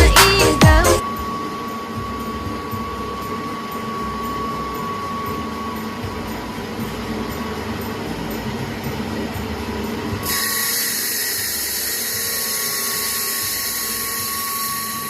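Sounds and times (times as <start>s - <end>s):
electronic music with bass drops: 0.0s - 1.3s
cutting machine humming and whining: 0.0s - 15.0s.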